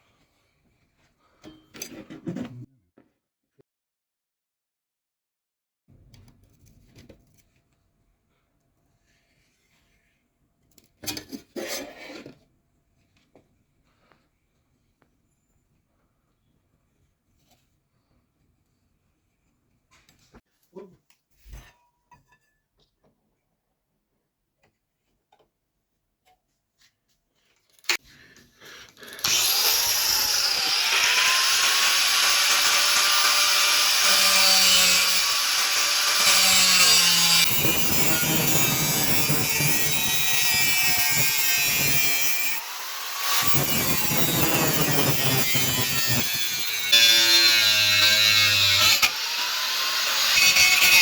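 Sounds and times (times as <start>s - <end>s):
power tool running: 29.0s - 51.0s.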